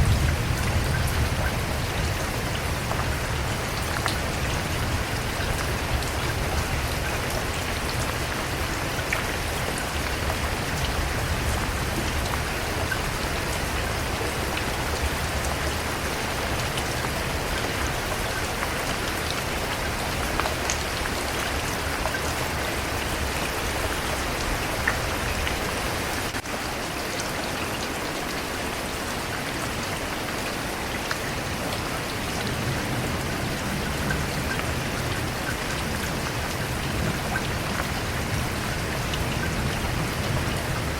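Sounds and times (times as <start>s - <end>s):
raindrops ticking on a surface: 0.0s - 40.9s
steady rain falling: 0.0s - 40.9s.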